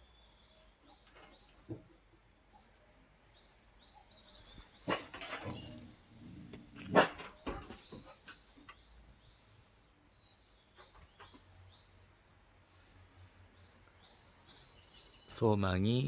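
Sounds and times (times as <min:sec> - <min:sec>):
bird chirping: 0:00.0 - 0:16.0
dogs barking: 0:04.8 - 0:07.4.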